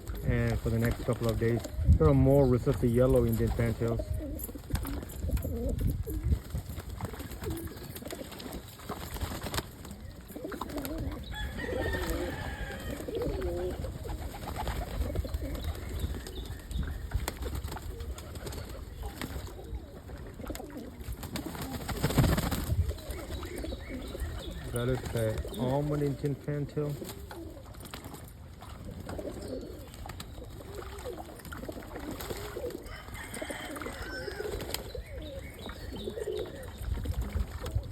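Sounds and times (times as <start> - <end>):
pigeons cooing: 0.0 - 37.9.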